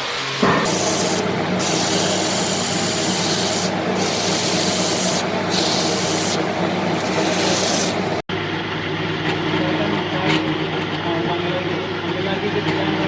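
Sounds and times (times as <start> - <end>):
tool pressed against spinning wood: 0.4 - 8.2
wood lathe running: 0.4 - 8.2.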